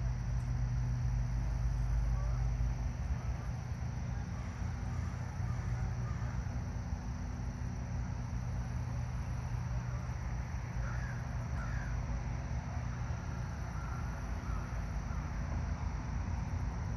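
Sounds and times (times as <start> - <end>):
bird calling: 10.8 - 12.0, 13.7 - 14.8.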